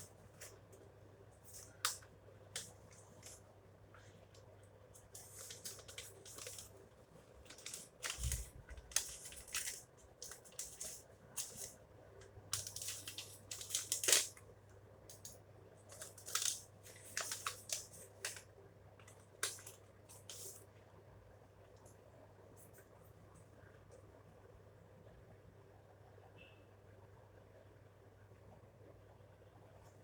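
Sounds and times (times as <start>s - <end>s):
packaging rustling and tearing: 5.2s - 6.8s, 7.4s - 11.8s, 12.5s - 14.4s, 15.9s - 20.6s.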